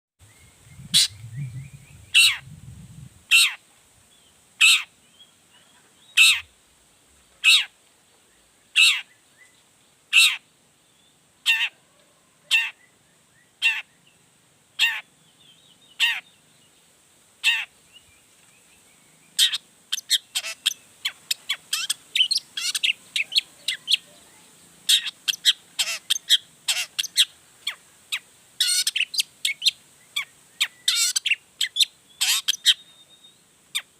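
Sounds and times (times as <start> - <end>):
bird giving harsh calls: 0.9 - 1.3, 2.0 - 2.5, 3.3 - 3.6, 4.6 - 4.9, 6.2 - 6.5, 7.4 - 7.7, 8.8 - 9.1, 10.1 - 10.4, 11.4 - 11.8, 13.6 - 13.9, 17.4 - 17.7, 19.4 - 24.0, 24.9 - 29.2, 30.2 - 32.8.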